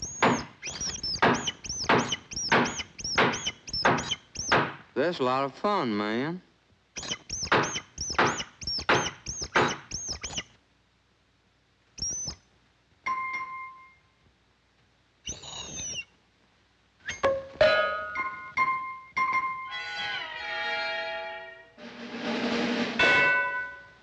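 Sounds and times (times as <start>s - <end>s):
held ringing tone: 13.1s - 14.0s.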